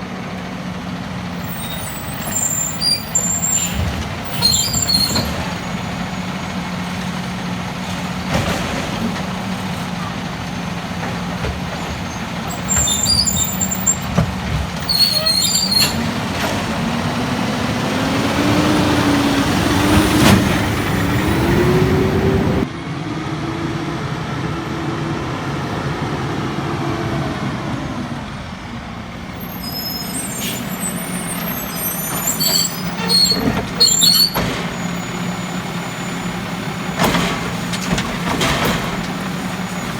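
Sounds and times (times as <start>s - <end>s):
garbage truck engine revving: 0.1s - 39.9s
clattering: 3.2s - 17.0s, 36.3s - 39.9s
air brake hisses: 29.6s - 31.3s.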